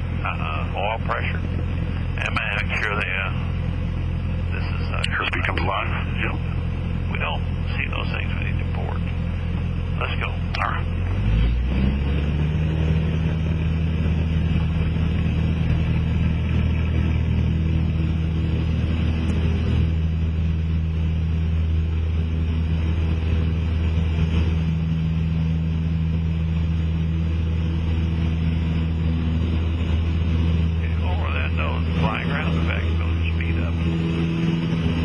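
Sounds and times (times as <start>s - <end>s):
light aircraft engine and propeller: 0.0s - 35.0s.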